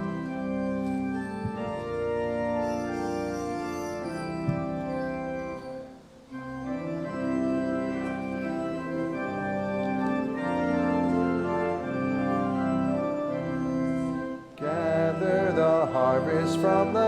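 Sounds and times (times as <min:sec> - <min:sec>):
church organ playing chords: 0:00.0 - 0:17.0.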